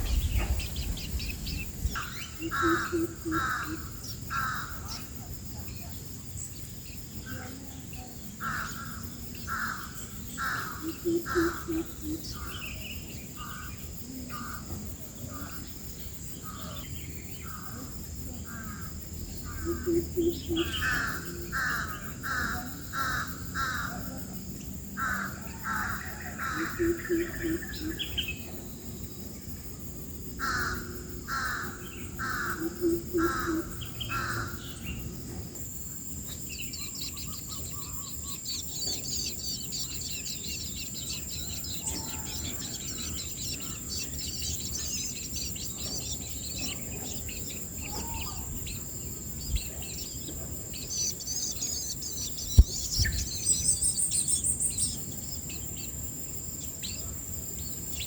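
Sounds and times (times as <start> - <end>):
harsh caw-like bird calls: 0.0 - 5.1, 8.4 - 12.8, 20.6 - 24.1, 25.0 - 28.0, 30.4 - 35.0
high insect whine: 0.0 - 58.0
high-pitched bird chirping: 49.4 - 55.0.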